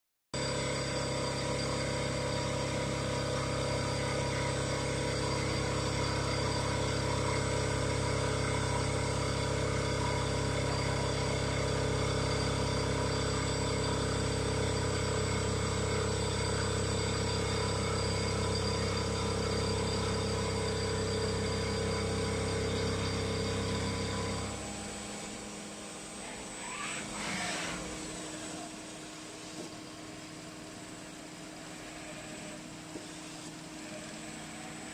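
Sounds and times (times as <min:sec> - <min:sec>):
machining center humming: 0:00.4 - 0:34.9.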